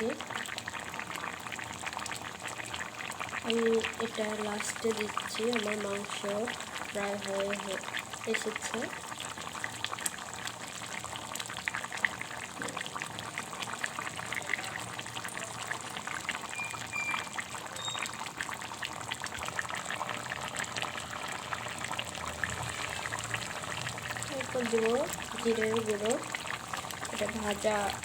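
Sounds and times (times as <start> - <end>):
curry bubbling in pot: 0.0 - 28.0.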